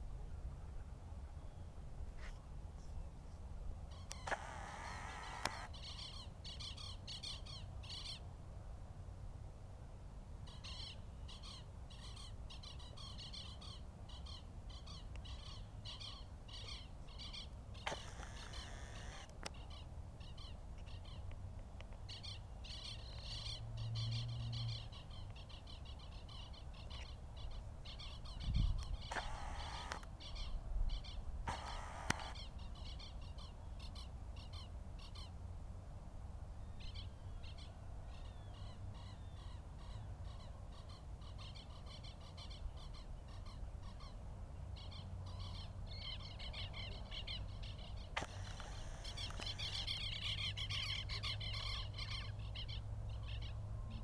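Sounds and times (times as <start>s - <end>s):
birds chirping: 3.9s - 8.2s, 10.5s - 21.2s, 22.1s - 33.5s, 45.3s - 54.0s
harsh bird calls: 3.9s - 8.2s, 10.5s - 21.2s, 26.3s - 34.0s, 44.9s - 54.0s.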